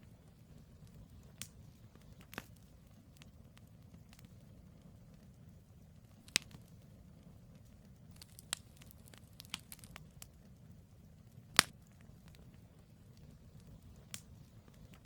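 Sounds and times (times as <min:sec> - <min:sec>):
wood fire crackling: 0:00.0 - 0:15.0
sharp pops from logs: 0:06.2 - 0:06.6, 0:08.1 - 0:10.0, 0:11.6 - 0:12.4.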